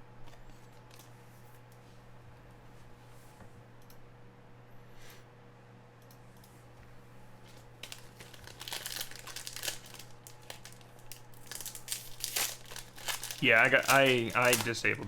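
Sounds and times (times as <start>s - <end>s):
low electrical hum: 0.0s - 15.0s
foil wrapper tearing and crinkling: 7.5s - 15.0s.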